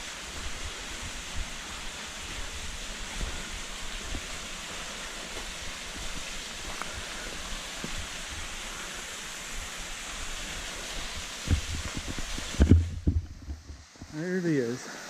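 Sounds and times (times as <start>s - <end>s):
small waterfall rushing: 0.0s - 15.0s
low thumps and rumbles: 11.1s - 14.2s.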